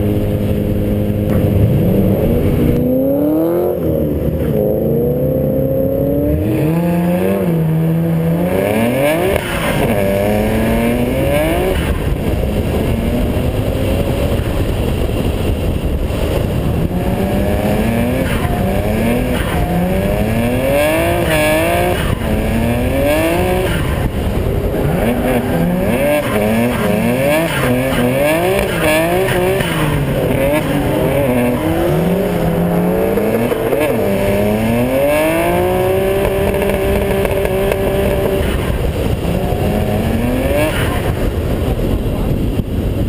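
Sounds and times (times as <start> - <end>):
car engine revving hard: 0.0 - 14.7, 16.1 - 42.0.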